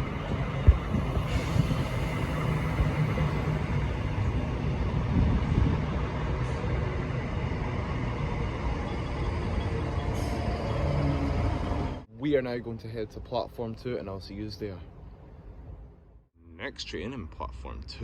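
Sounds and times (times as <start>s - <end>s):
electric train rumbling: 0.0s - 12.1s.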